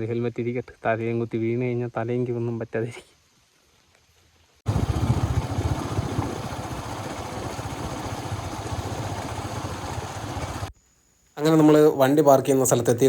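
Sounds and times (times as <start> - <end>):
motorcycle engine running: 4.7 - 10.7.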